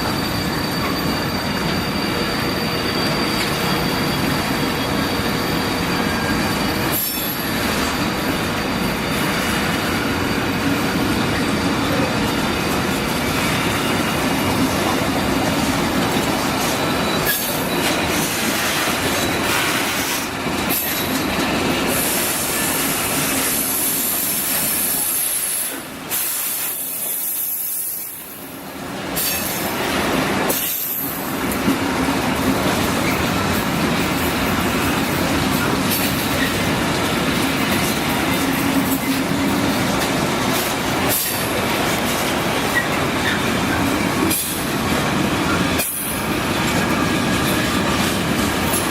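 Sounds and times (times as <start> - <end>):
wheel squeal: 0.0 - 28.2, 32.8 - 33.6
train running on rails: 0.0 - 48.9.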